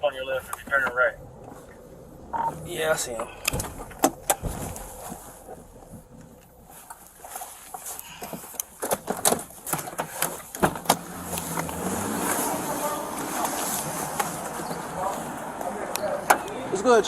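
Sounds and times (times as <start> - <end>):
footsteps: 0.4 - 16.5
body camera knocks and rustling: 8.2 - 11.1.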